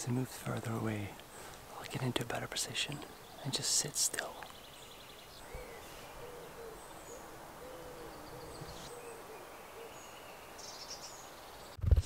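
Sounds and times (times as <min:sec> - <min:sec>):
small birds chirping: 0:00.0 - 0:11.8
bird hooting call: 0:05.4 - 0:11.2.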